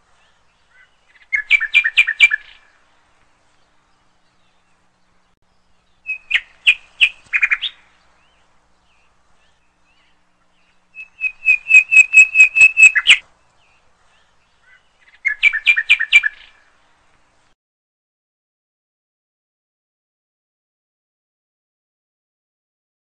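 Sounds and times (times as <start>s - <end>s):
bird chirping sharp notes: 11.0s - 13.2s.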